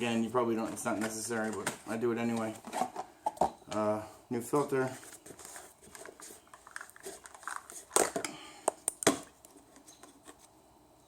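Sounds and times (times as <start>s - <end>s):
packaging clicks and rustles: 5.0s - 10.4s.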